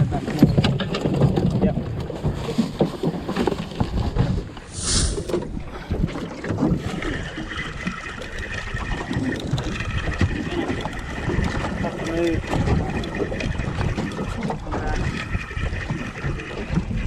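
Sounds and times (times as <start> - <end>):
knocks and handling clatter: 0.0 - 4.6
wind buffeting microphone: 0.0 - 17.0
short hiss: 4.7 - 5.3.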